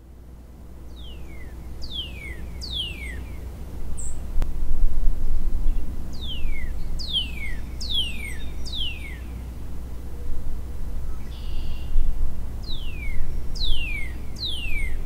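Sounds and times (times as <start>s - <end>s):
songbird whistling: 0.9s - 3.4s, 6.2s - 9.3s, 11.2s - 15.0s.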